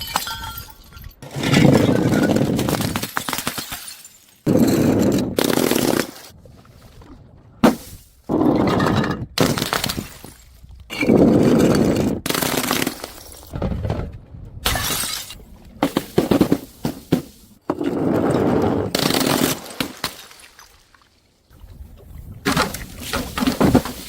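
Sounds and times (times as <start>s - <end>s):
glass shards crunching and clinking: 0.0s - 2.6s, 3.2s - 4.9s
glass bottles smashing: 0.0s - 5.9s, 14.7s - 15.4s.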